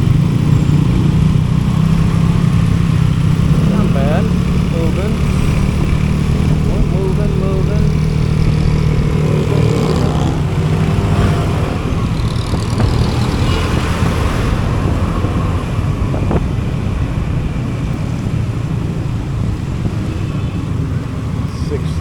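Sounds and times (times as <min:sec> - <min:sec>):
road traffic noise: 0:00.0 - 0:22.0
vehicle engines: 0:00.0 - 0:22.0.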